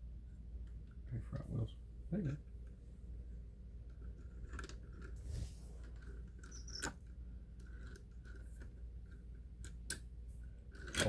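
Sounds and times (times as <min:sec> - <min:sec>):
low steady hum: 0:00.0 - 0:11.0
model train handling clicks: 0:10.8 - 0:11.0.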